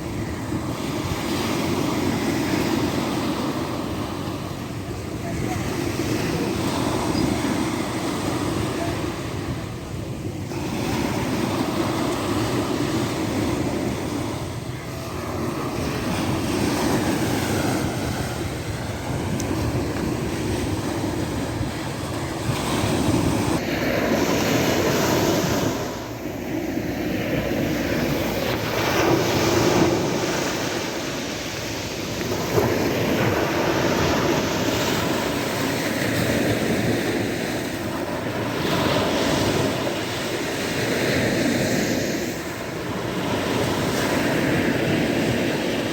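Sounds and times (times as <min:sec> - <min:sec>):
sea waves breaking ashore: 0:00.0 - 0:45.9.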